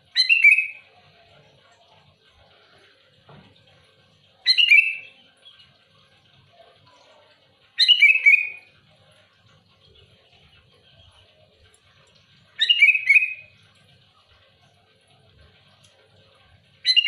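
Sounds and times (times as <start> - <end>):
faint background chirping: 0.0 - 17.0
bird calling loudly: 7.8 - 8.7, 12.6 - 13.5.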